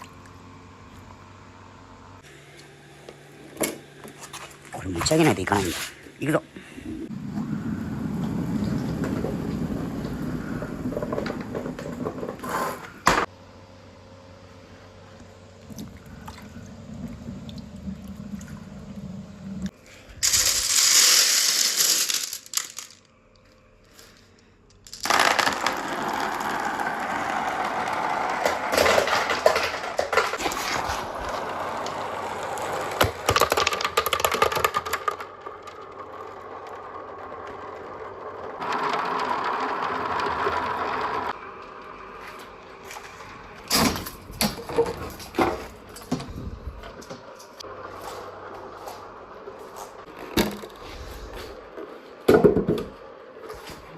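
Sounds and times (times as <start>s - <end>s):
marbles rolling and clacking in pipes: 8.3s - 12.6s, 20.2s - 23.1s, 24.7s - 41.4s.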